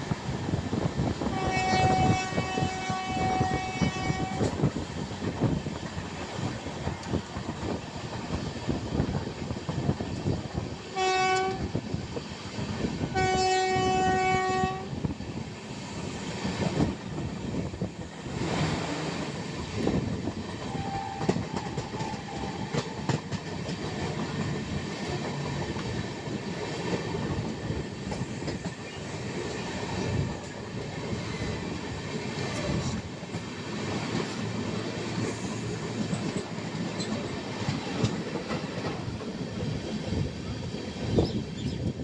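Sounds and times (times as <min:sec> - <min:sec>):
train rumbling: 0:00.0 - 0:42.0
train horn blasts: 0:01.3 - 0:04.6, 0:10.9 - 0:11.7, 0:13.1 - 0:15.0, 0:20.6 - 0:22.9
train wheels clacking: 0:15.7 - 0:42.0.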